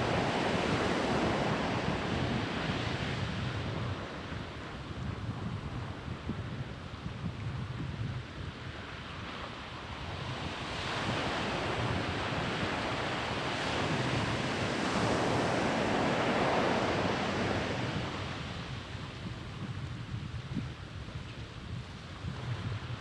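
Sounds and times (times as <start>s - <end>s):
wave breaking on beach: 0.0s - 3.5s, 10.3s - 19.1s
wind on microphone: 0.0s - 23.0s.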